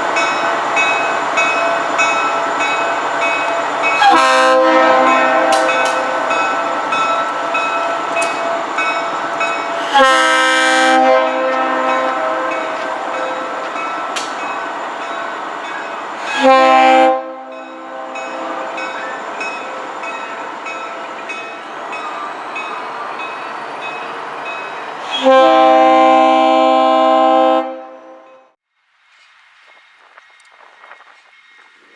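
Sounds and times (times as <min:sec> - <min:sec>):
locomotive bell ringing: 0:00.0 - 0:25.0
locomotive horn blasts: 0:04.0 - 0:06.8, 0:09.8 - 0:13.8, 0:16.3 - 0:19.0, 0:25.1 - 0:28.5.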